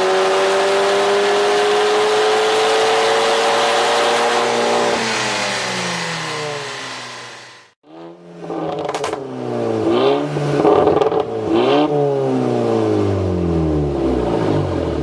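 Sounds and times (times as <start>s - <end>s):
car engine revving: 0.0s - 15.0s
exhaust crackles and pops: 8.6s - 9.2s.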